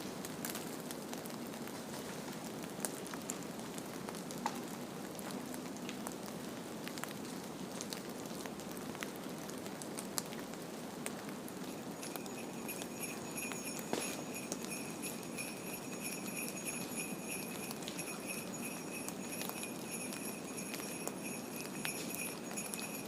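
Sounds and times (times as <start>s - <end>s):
small bells jingling: 11.6s - 23.0s.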